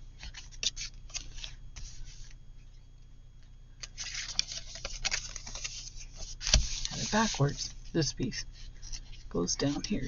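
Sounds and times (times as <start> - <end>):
paper rustling: 3.8 - 7.7.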